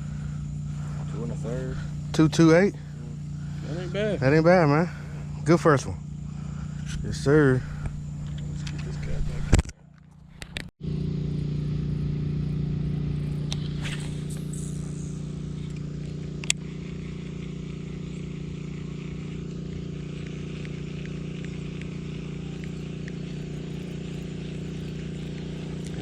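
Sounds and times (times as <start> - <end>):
machine hum: 0.0 - 26.0
sharp click: 15.6 - 16.6.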